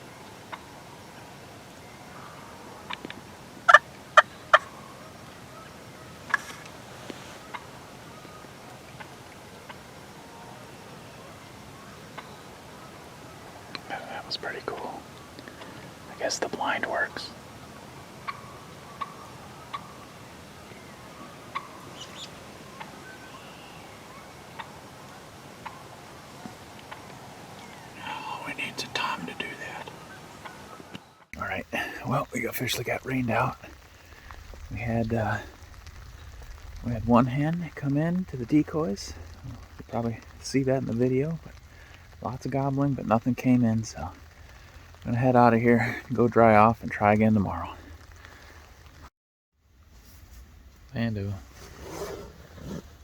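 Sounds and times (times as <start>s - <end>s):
distant bird calls: 0.0s - 42.3s
wild turkey gobbling: 1.8s - 16.0s, 16.8s - 36.3s.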